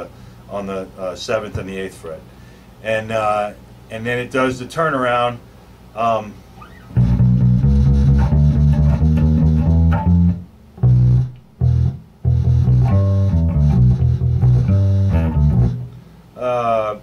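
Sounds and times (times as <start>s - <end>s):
bass guitar blues line: 6.0s - 17.0s.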